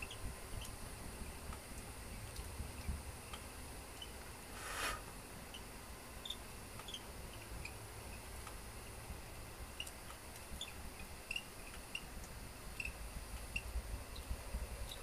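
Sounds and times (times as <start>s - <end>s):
small birds chirping: 0.0s - 8.5s, 9.3s - 15.0s.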